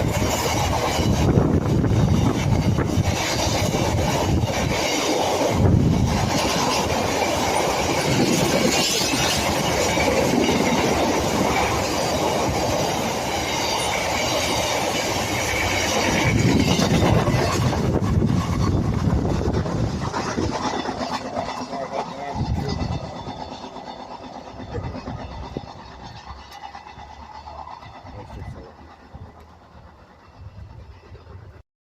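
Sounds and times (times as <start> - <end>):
train wheels rolling on rails: 0.0 - 31.6.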